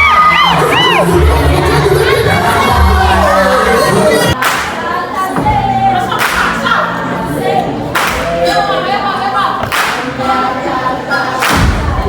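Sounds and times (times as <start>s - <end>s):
group singing with music: 0.0s - 12.0s
sharp clap-like hit: 4.4s - 4.8s, 8.0s - 8.3s, 9.7s - 10.1s, 11.4s - 11.9s.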